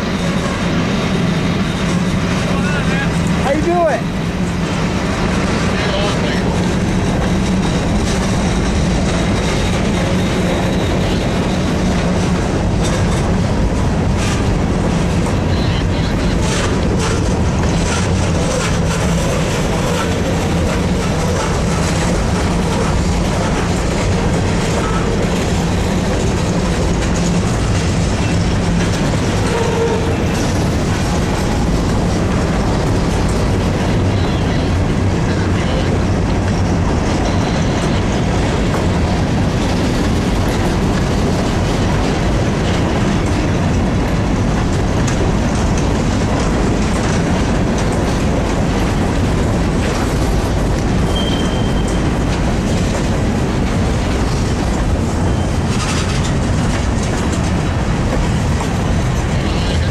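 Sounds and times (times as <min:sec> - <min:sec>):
steel wheels rumbling on rail: 0:00.0 - 0:59.9.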